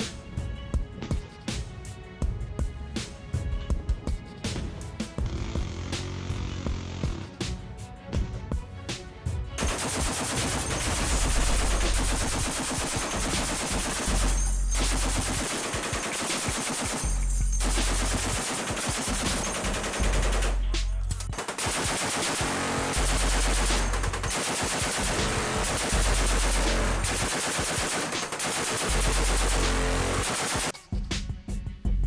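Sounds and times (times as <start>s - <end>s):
rapid gunfire: 9.6s - 30.8s.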